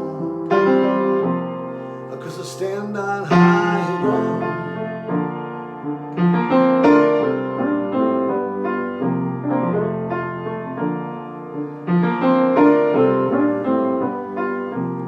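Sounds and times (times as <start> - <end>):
person singing: 0.0 - 1.1, 2.1 - 5.1
piano playing chords: 0.0 - 15.0.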